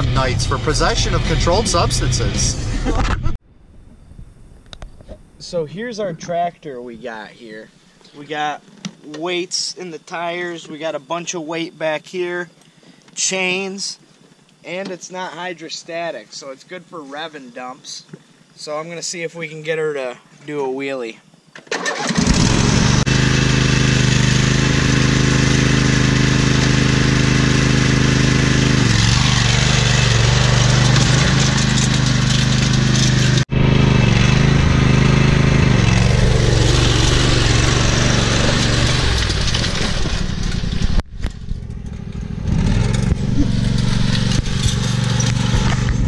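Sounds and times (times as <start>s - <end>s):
small tractor engine revving hard: 0.0s - 3.0s, 21.7s - 46.0s.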